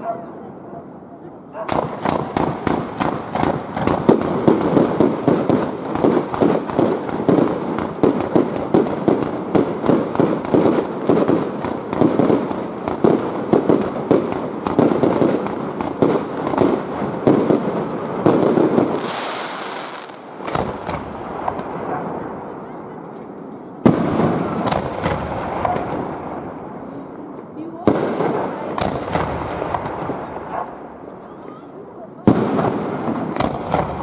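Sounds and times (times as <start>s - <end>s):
fireworks bangs: 0.0s - 34.0s
fireworks hissing: 18.6s - 20.6s.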